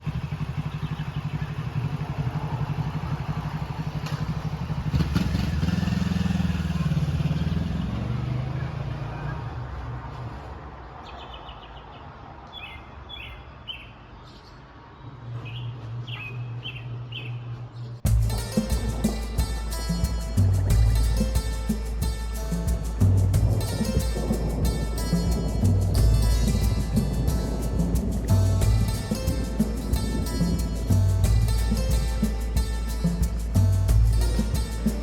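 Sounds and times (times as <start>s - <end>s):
small birds chirping: 0.0s - 5.0s, 11.0s - 35.0s
vehicle engine running: 0.0s - 9.2s, 18.1s - 35.0s.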